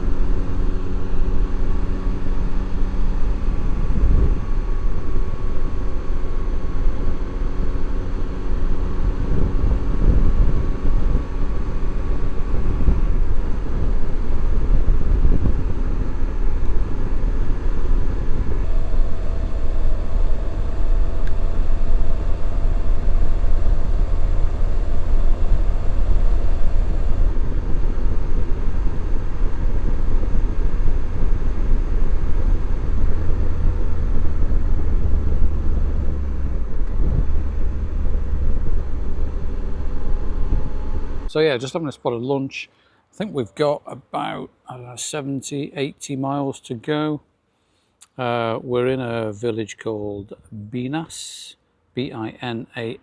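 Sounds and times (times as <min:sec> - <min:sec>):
motorcycle engine running: 0:00.0 - 0:41.3
wind rumble on microphone: 0:00.0 - 0:41.3.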